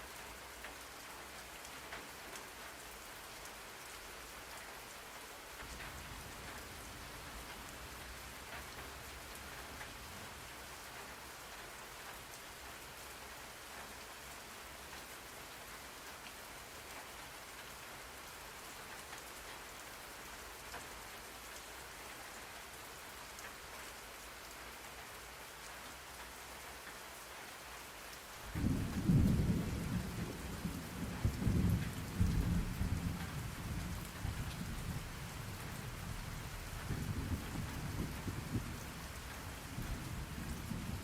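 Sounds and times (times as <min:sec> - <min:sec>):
thunder rumbling: 0:28.6 - 0:35.2, 0:35.9 - 0:41.0.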